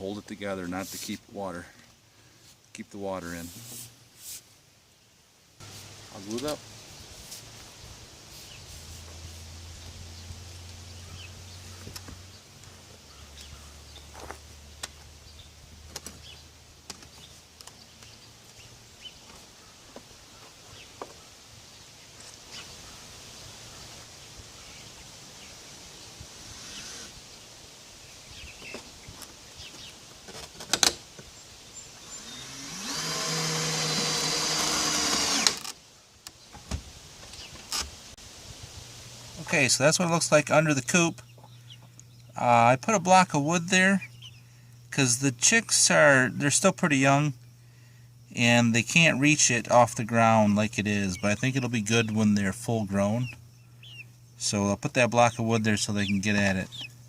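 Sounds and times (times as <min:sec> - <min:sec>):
small power tool motor: 0:26.4 - 0:27.2, 0:32.0 - 0:35.8.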